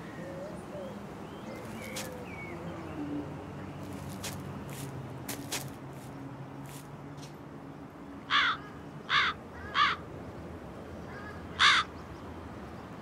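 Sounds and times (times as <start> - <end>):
crow cawing: 8.3 - 10.0, 11.1 - 11.9.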